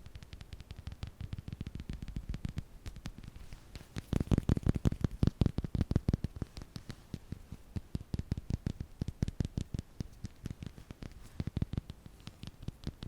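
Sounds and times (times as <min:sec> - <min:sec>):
light tapping: 0:00.0 - 0:13.0.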